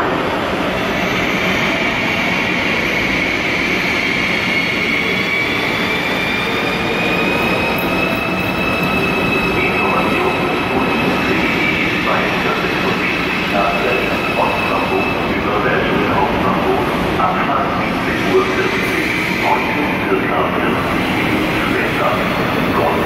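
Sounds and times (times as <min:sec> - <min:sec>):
train traction drive whining: 0:02.9 - 0:17.2.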